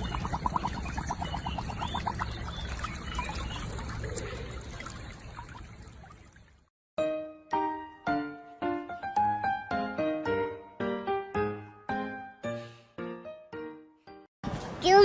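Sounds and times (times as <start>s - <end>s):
gargling bubbling warble: 0.0s - 5.8s
water pouring and trickling: 0.0s - 6.7s
piano music: 7.0s - 14.3s.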